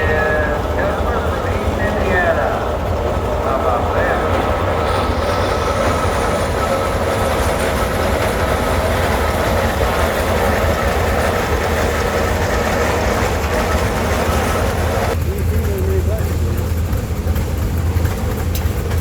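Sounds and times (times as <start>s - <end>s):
old engines rumbling: 0.0s - 19.0s
hiss: 4.8s - 11.8s.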